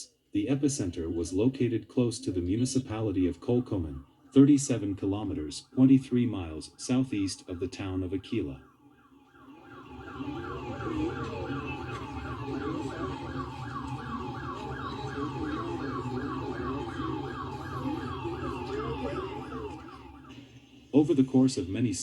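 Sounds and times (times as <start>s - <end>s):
siren in quick falling sweeps: 5.6s - 20.9s.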